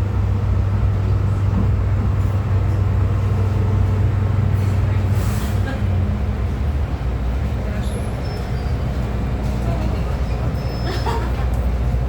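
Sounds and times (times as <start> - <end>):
train wheel and track rumble: 0.0 - 12.0.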